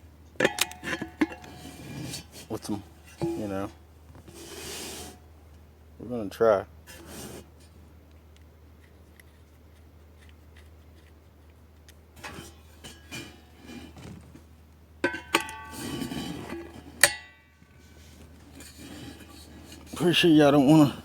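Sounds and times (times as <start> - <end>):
low steady hum: 0.0 - 21.0
metal clinking and knocking: 3.0 - 3.7, 15.0 - 17.8.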